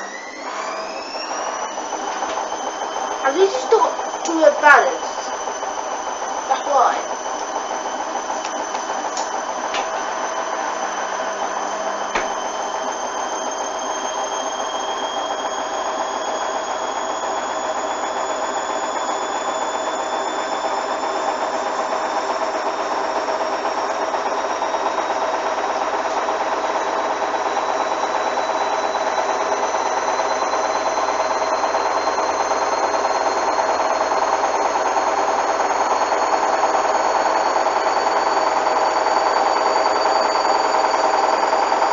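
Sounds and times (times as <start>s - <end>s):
washing machine spinning up: 0.0s - 41.9s
sharp click: 12.2s - 12.4s.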